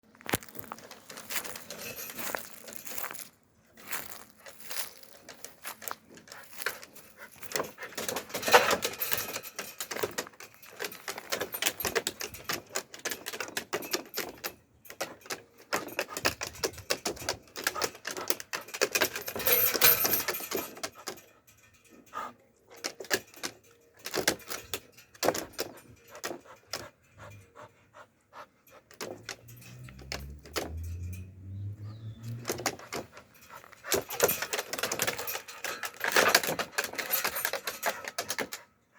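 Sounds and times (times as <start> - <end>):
metallic jingling: 0.7 - 38.9
dog panting: 25.9 - 29.4
clicks and scrapes: 28.7 - 38.7.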